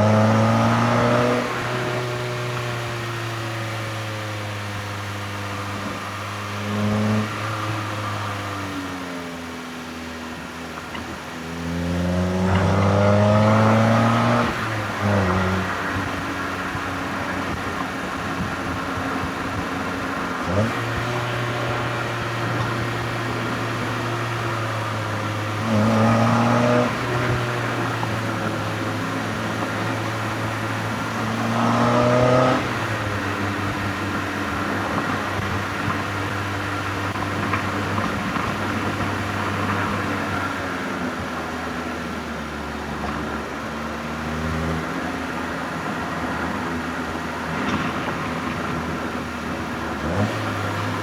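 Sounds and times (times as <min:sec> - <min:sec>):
car engine and exhaust: 0:00.0 - 0:51.0.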